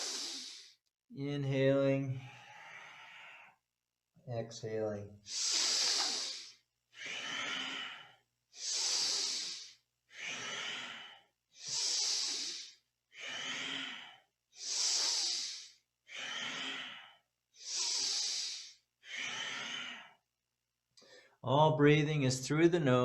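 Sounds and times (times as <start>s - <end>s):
deep breathing through the nose: 0.0s - 0.8s, 2.2s - 3.7s, 5.2s - 20.3s.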